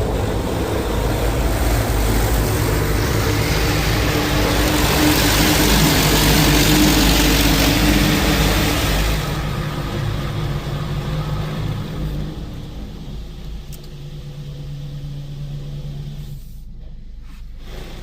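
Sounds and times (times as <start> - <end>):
steady low hum: 0.0 - 18.0
water jets spraying car body: 0.0 - 18.0.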